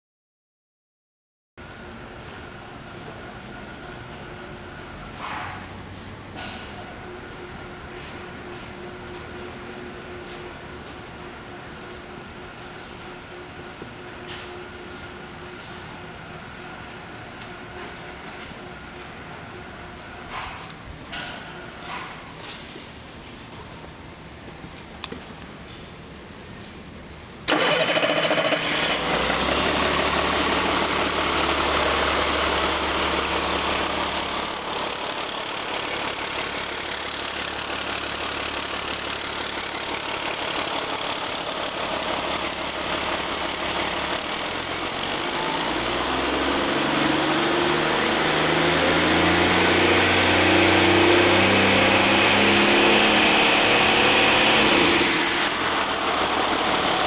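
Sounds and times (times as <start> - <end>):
diesel engine revving: 27.5 - 57.0.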